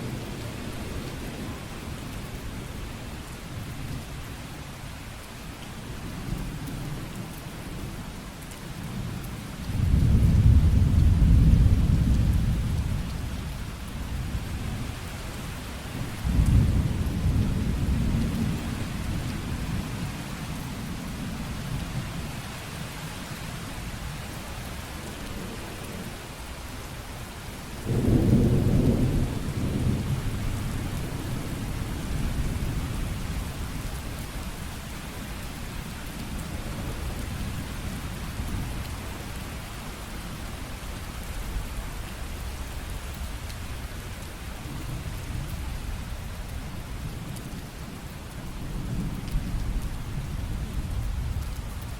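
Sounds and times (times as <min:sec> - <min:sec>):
steady rain: 0:00.0 - 0:51.9
rolling thunder: 0:09.8 - 0:13.3, 0:27.8 - 0:33.6.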